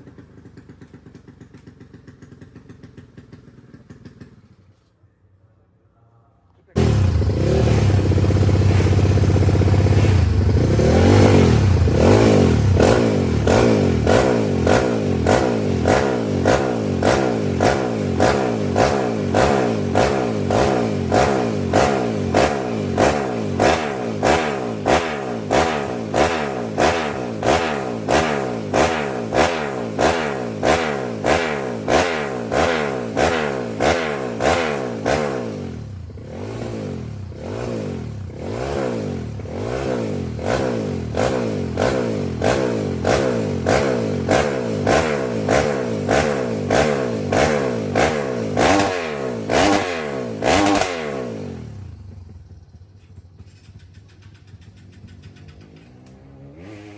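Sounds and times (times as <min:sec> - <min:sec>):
motorcycle engine revving: 0:00.0 - 0:04.8, 0:06.7 - 0:56.9.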